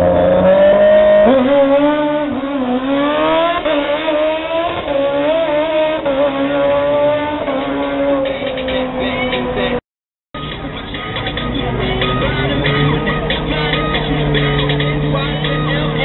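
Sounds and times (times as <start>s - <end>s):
motorcycle engine accelerating: 0.0s - 9.4s.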